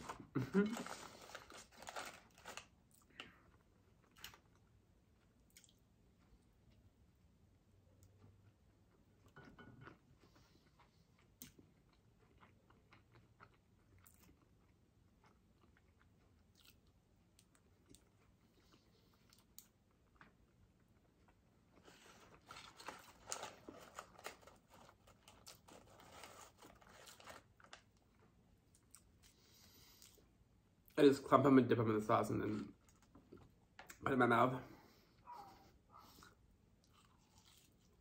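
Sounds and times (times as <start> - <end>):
paper wrapper crackling: 0.0 - 2.8, 22.1 - 27.9
faint chewing and mouth clicks: 1.2 - 7.2, 7.8 - 31.0, 32.5 - 34.1, 34.9 - 38.0.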